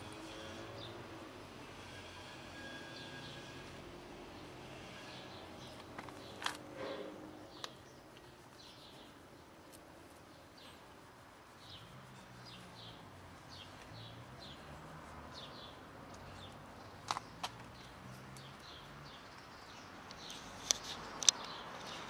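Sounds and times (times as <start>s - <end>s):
small birds chirping: 7.3s - 22.0s.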